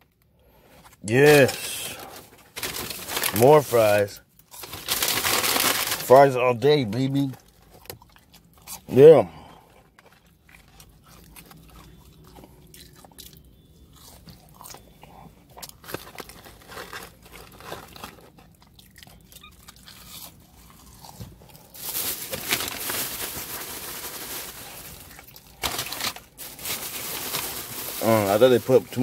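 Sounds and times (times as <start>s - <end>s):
person crunching fries: 1.2s - 6.2s, 9.7s - 29.0s.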